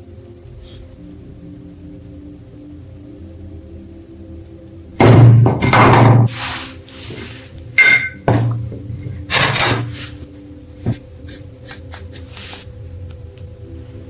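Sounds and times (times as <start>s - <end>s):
quiet background music: 0.0s - 14.0s
metal scrape: 5.7s - 10.3s.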